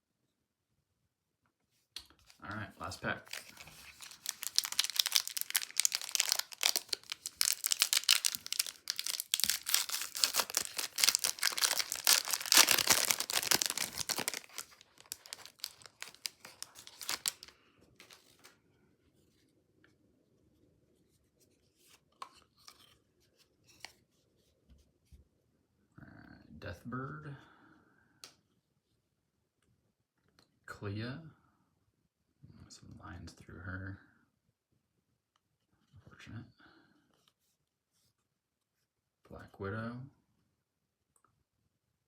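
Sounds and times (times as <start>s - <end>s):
wrapper tearing and crinkling: 3.2s - 18.5s.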